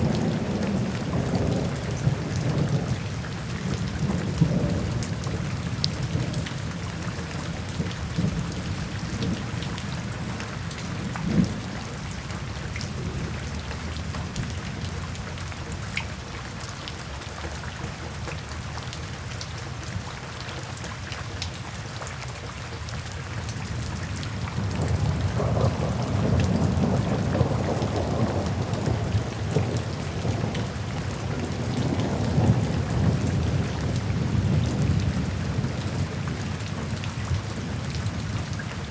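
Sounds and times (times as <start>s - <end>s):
steady rain falling: 0.0s - 38.9s
thunder rumbling: 24.6s - 38.2s.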